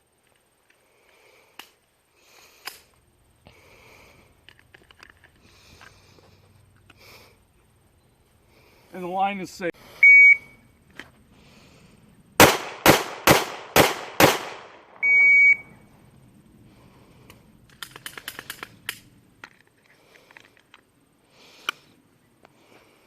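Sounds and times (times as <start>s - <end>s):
short electronic beep: 10.0s - 10.6s, 15.0s - 15.8s
pistol shots: 12.4s - 15.0s
fast faint clicks: 17.2s - 20.9s.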